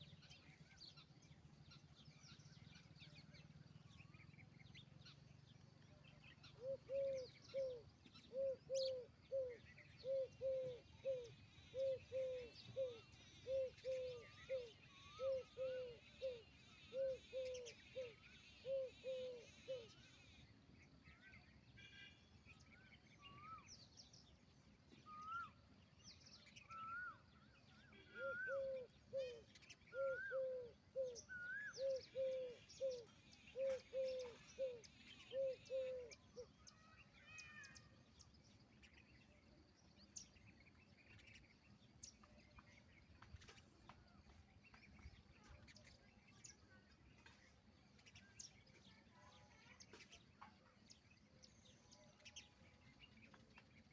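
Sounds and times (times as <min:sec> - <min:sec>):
small birds chirping: 0:00.0 - 0:53.9
peahen calling: 0:06.4 - 0:20.3, 0:26.6 - 0:37.9.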